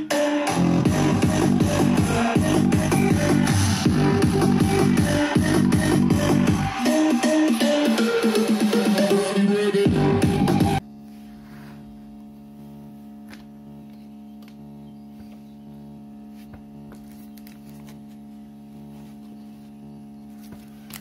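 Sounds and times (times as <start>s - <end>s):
music from speaker: 0.0s - 10.8s
electrical hum with pitched tones: 0.0s - 21.0s.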